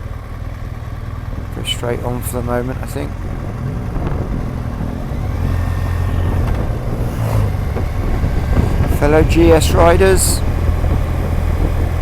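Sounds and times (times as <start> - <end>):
motorcycle engine running: 0.0 - 12.0
wind rush: 3.0 - 12.0.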